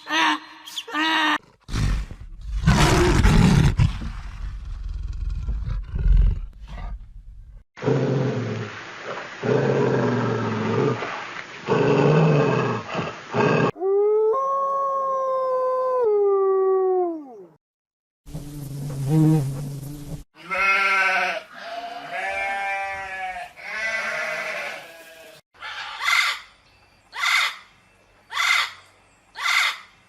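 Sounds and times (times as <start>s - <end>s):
rough animal roar: 1.7s - 3.9s.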